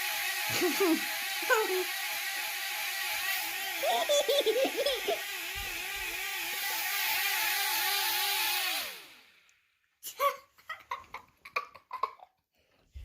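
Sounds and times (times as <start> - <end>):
drone propeller motors whining: 0.0 - 9.4.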